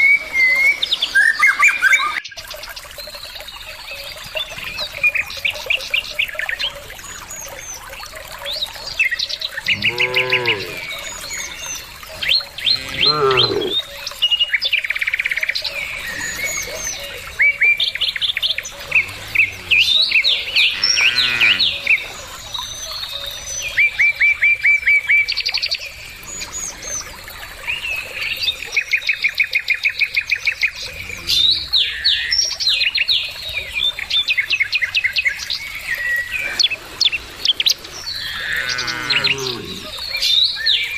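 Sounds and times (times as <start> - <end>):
small birds chirping trills: 0.0 - 24.0, 25.3 - 40.9
cows mooing: 9.6 - 11.4, 12.6 - 13.8, 18.7 - 21.9, 30.8 - 31.8, 38.2 - 40.0.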